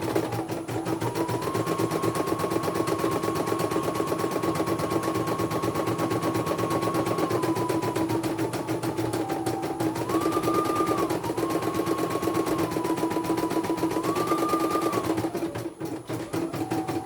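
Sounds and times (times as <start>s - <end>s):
machine motor whine: 0.0s - 17.0s.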